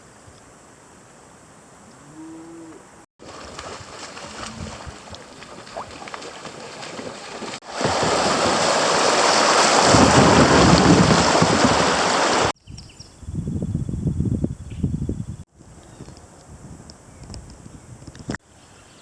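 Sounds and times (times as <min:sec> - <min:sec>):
creek water rushing: 0:03.2 - 0:12.5
wind on microphone: 0:03.4 - 0:06.1, 0:09.5 - 0:18.4.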